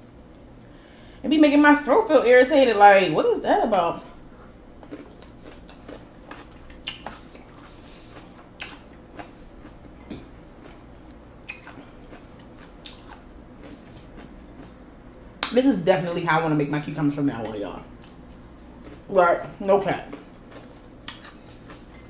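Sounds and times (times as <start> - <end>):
person chewing: 4.1 - 15.5, 17.9 - 22.0.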